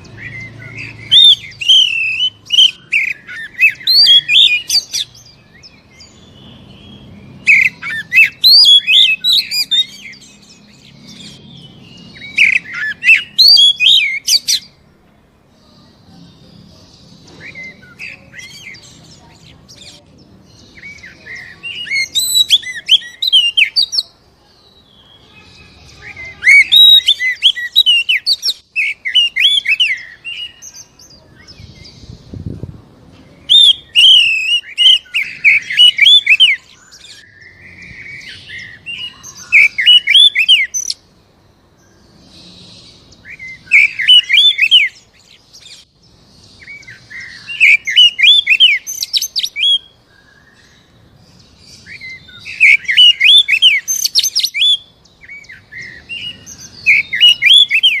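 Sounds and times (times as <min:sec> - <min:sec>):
bird singing whistles: 0:00.1 - 0:14.8, 0:20.6 - 0:24.0, 0:25.9 - 0:32.0, 0:33.5 - 0:41.0, 0:43.2 - 0:45.8, 0:46.5 - 0:50.8, 0:51.7 - 0:58.0.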